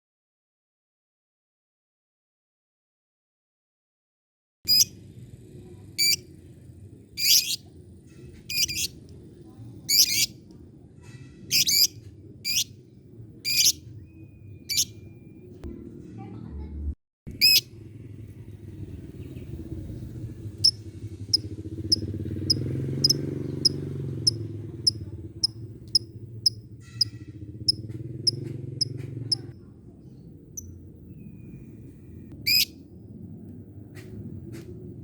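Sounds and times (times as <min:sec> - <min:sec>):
bird shrill squeak: 0:06.0 - 0:06.2, 0:07.2 - 0:07.6, 0:08.5 - 0:08.9, 0:09.9 - 0:10.3, 0:11.5 - 0:12.7, 0:13.5 - 0:13.8, 0:14.6 - 0:15.0, 0:32.5 - 0:32.7
lovebird ticking call: 0:06.0 - 0:06.2, 0:07.2 - 0:07.6, 0:08.5 - 0:08.9, 0:09.9 - 0:10.3, 0:13.5 - 0:13.8, 0:14.7 - 0:14.9, 0:20.6 - 0:29.5.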